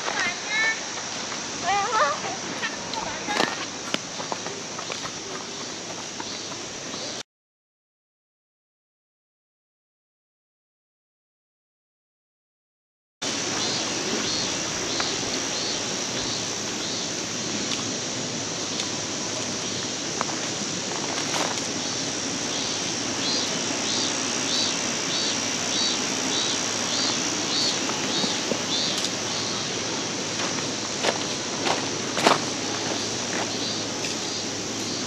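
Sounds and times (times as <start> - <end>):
stream rushing water: 0.0 - 6.9, 13.2 - 35.0
high insect buzz: 13.2 - 35.0.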